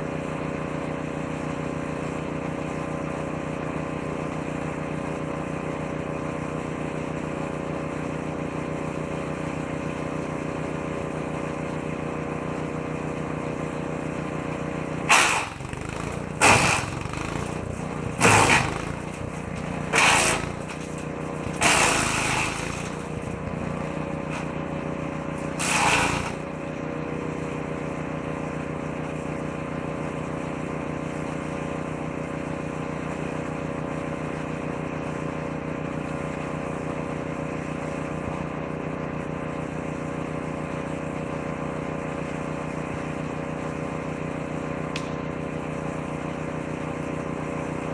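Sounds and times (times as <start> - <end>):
woodchipper engine running: 0.0 - 33.9
wood being shredded: 15.1 - 26.6.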